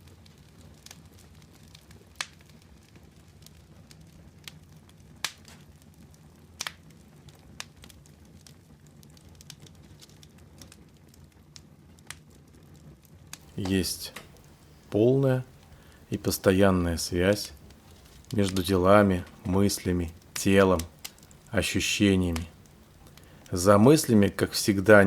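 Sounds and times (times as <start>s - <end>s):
fire crackling in a fireplace: 0.0s - 25.0s
low steady hum: 13.5s - 25.0s.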